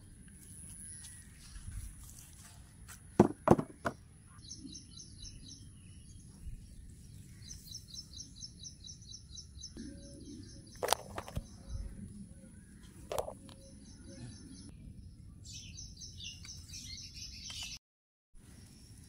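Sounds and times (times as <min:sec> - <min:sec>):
handling knocks: 0:03.2 - 0:04.0
bird chirping: 0:03.7 - 0:17.8.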